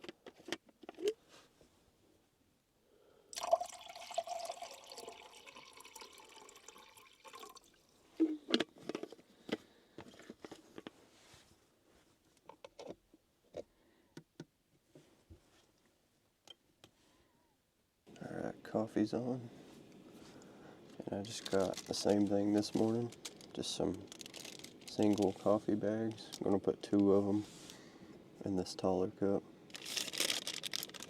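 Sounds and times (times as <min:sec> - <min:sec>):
water pouring into container: 0:03.4 - 0:07.8.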